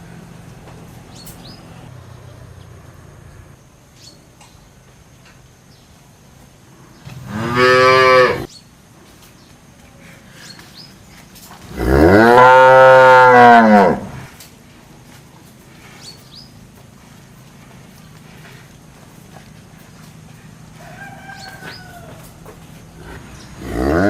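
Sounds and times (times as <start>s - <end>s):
cow mooing: 7.2s - 8.5s, 11.7s - 14.2s, 23.0s - 24.0s.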